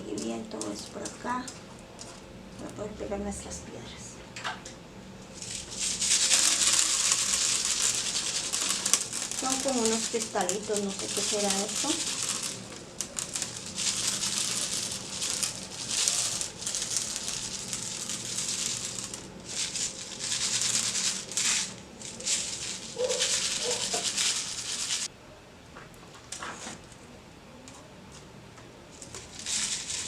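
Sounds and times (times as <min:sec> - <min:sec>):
plastic packaging crinkling: 0:00.0 - 0:02.7, 0:05.3 - 0:25.1, 0:29.0 - 0:30.0
glass crystals rattling: 0:05.4 - 0:25.1.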